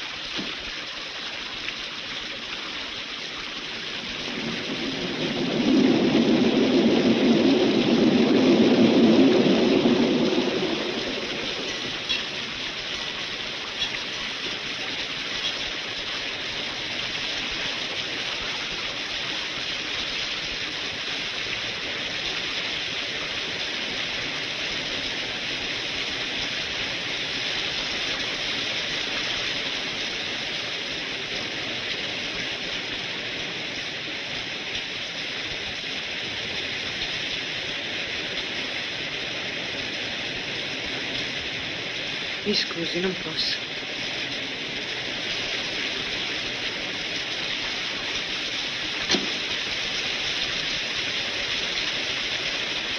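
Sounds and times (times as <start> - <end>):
heavy rain pouring: 0.0 - 52.9
train rumbling past: 3.8 - 16.5.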